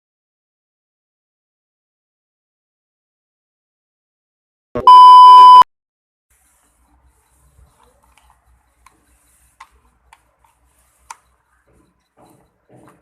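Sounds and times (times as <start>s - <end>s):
buzzer beep: 4.8s - 5.6s
click: 11.0s - 11.3s.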